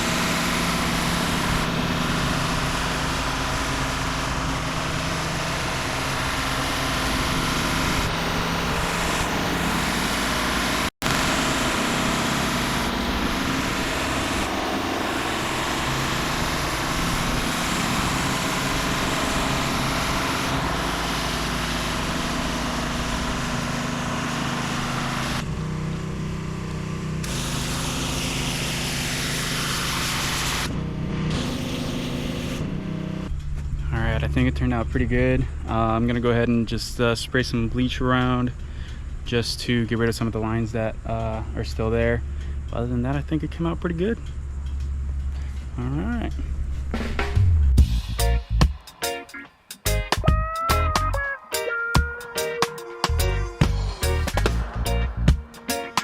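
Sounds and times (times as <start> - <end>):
high-pressure water spraying: 0.0 - 25.4, 27.2 - 30.7, 31.4 - 32.6
small gas engine running: 0.0 - 33.8.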